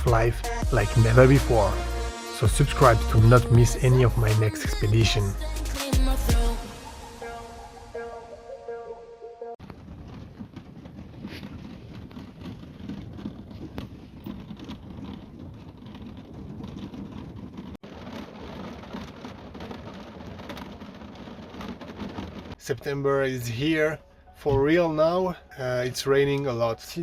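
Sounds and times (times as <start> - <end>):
rain falling: 17.6 - 24.7.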